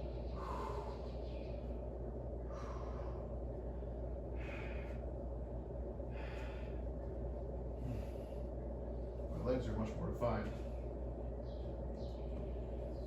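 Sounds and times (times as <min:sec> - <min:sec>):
man breathing hard: 0:00.0 - 0:01.6, 0:02.4 - 0:05.2, 0:06.0 - 0:07.0, 0:07.7 - 0:08.6
steady low hum: 0:00.0 - 0:13.0.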